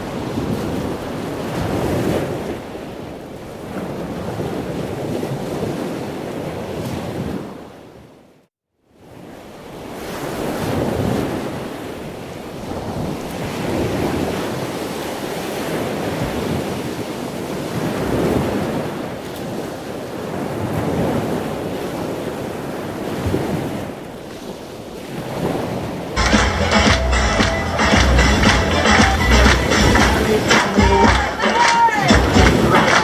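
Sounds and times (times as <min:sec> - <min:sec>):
sea waves rushing: 0:19.7 - 0:33.0.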